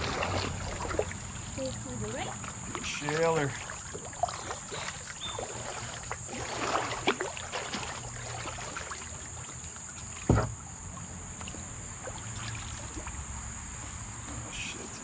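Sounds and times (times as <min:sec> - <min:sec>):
kayak paddle strokes splashing: 0:00.0 - 0:15.0.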